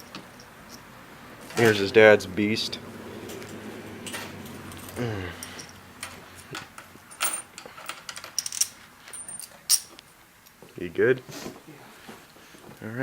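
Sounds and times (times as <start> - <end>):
short vocal sound: 4.8 - 5.6.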